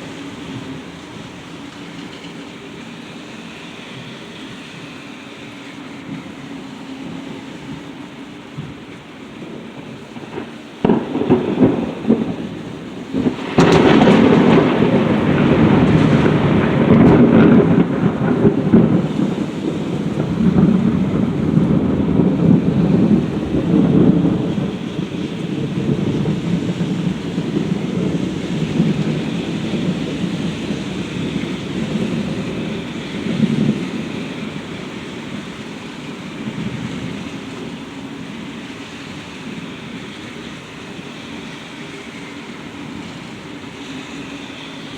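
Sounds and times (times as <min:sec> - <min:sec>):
steady rain: 0:00.0 - 0:44.9
thunder crack and rumble: 0:07.0 - 0:41.2.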